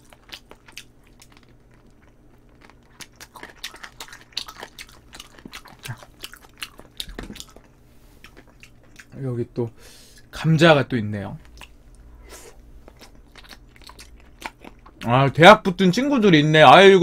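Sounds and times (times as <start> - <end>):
person chewing and smacking: 0.0 - 9.2, 11.4 - 12.1, 12.8 - 15.2.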